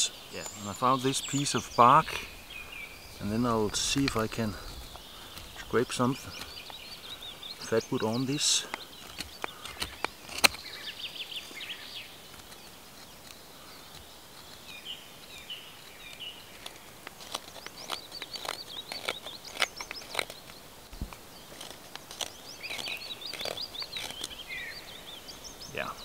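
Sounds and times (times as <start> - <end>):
birds chirping: 0.0 - 26.0
knife scraping wood: 8.7 - 11.0, 15.8 - 24.4.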